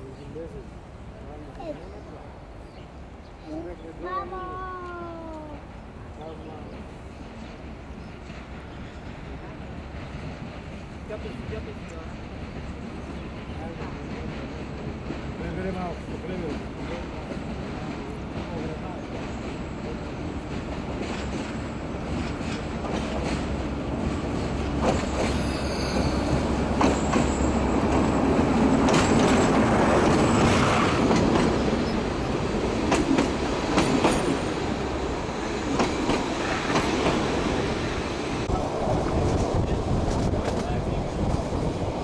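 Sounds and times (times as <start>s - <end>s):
diesel locomotive engine rumbling: 0.0s - 42.0s
train wheels squealing: 24.8s - 31.0s.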